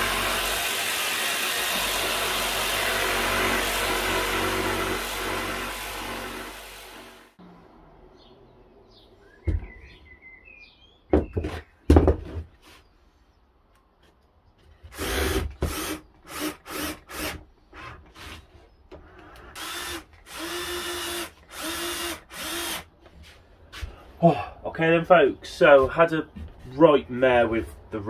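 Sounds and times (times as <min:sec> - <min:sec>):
power drill motor spinning: 0:00.0 - 0:07.4, 0:14.9 - 0:22.9
wooden knocks: 0:11.1 - 0:12.5.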